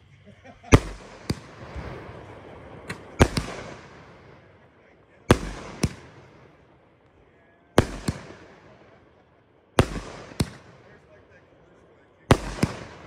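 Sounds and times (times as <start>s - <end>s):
fireworks cake shots banging: 0.7s - 1.9s, 2.8s - 4.0s, 5.3s - 6.6s, 7.8s - 9.0s, 9.8s - 11.0s, 12.3s - 13.0s.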